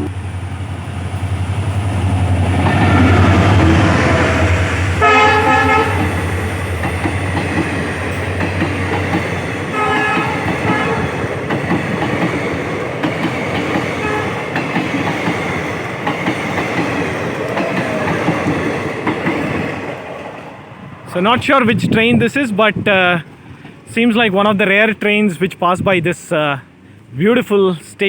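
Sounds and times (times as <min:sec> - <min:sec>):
train wheels clattering on rails: 0:00.0 - 0:20.6
low train rumble: 0:00.0 - 0:27.9
train horn blasts: 0:03.7 - 0:06.3, 0:09.7 - 0:11.2, 0:14.0 - 0:14.4.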